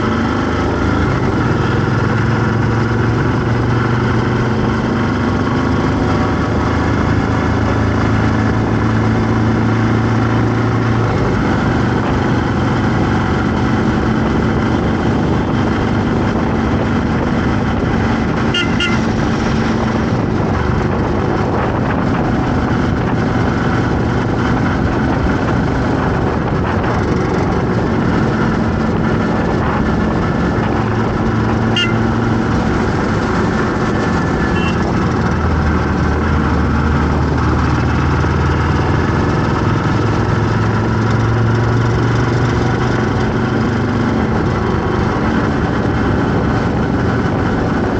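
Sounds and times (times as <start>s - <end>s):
road traffic: 0.0s - 47.9s
vehicle horn toots: 18.4s - 19.2s, 31.7s - 32.2s, 34.4s - 35.0s.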